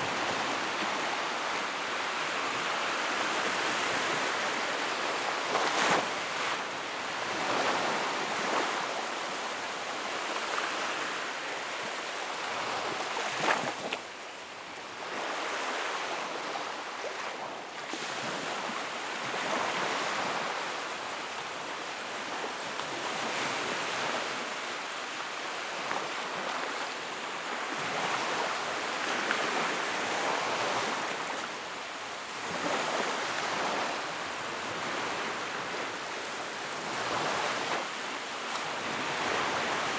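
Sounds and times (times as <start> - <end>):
sea waves breaking: 0.0 - 9.0, 32.3 - 39.9.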